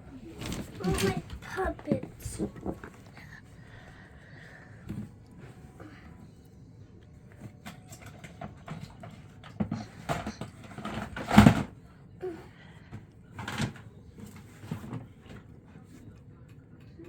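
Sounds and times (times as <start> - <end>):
knocks and clattering of objects: 0.2 - 3.2, 7.4 - 11.8, 12.9 - 16.2.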